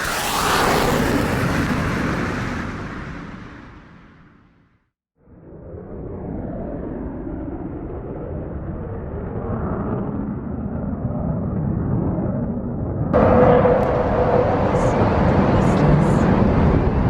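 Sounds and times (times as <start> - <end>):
airplane engine rumble: 13.2 - 17.0.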